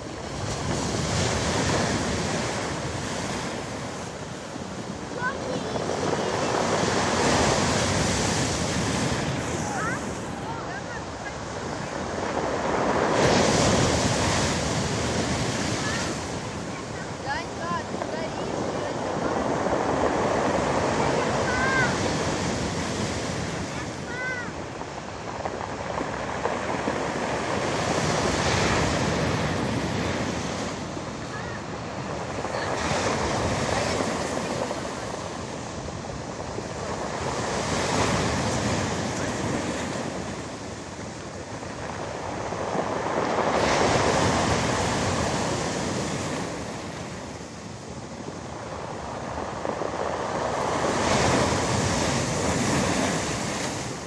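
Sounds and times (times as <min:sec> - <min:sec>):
surf breaking on pebble beach: 0:00.0 - 0:54.0.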